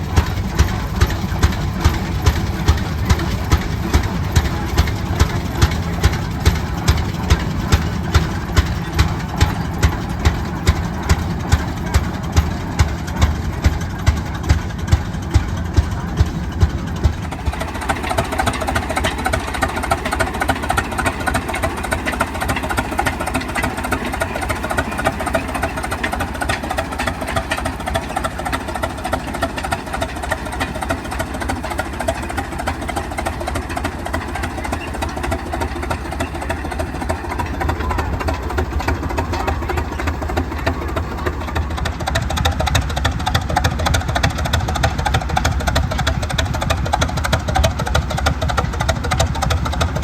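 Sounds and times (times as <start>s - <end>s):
tractor engine running: 0.0s - 50.0s.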